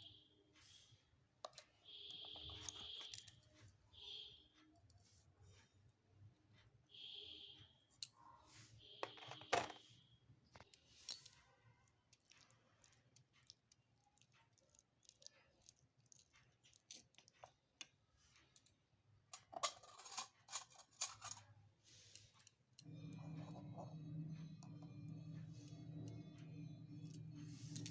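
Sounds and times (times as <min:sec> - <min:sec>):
small utensils clicking: 0:19.3 - 0:22.6.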